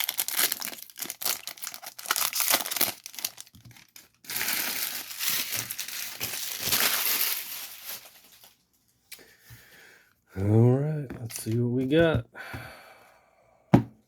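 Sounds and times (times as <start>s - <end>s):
card pack wrappers crinkling: 0.0s - 8.6s.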